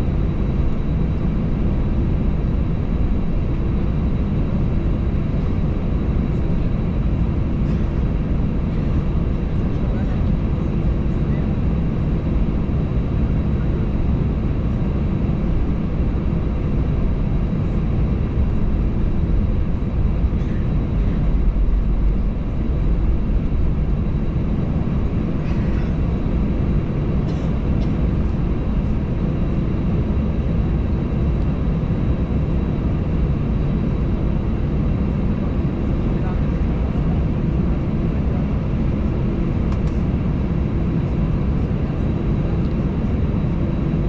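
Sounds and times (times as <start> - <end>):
aircraft cabin drone: 0.0 - 44.0.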